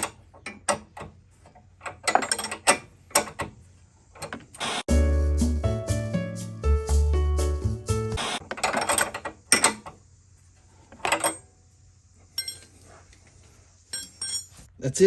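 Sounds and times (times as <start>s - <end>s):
metal clinks: 12.3s - 12.9s, 13.8s - 14.7s.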